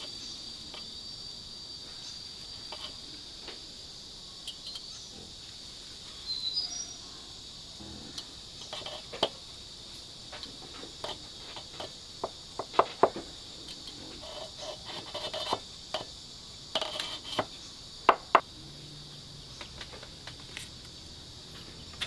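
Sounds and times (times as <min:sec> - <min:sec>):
insects chirring: 0:00.0 - 0:22.0
knocks and clatter of handling: 0:10.3 - 0:13.4.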